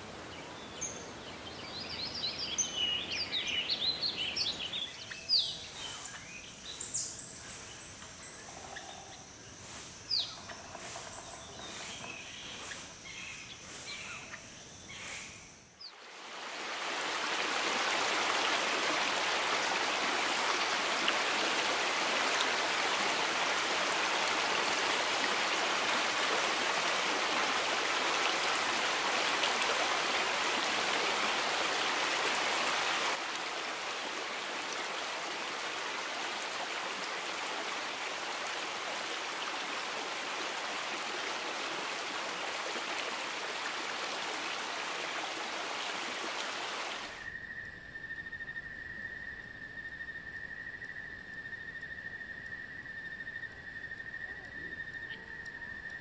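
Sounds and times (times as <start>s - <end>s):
stream running over rocks: 15.9s - 47.2s.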